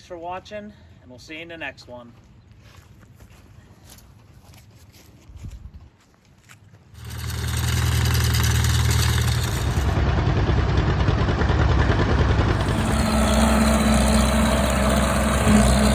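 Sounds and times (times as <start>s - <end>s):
tractor engine running: 7.0s - 15.9s.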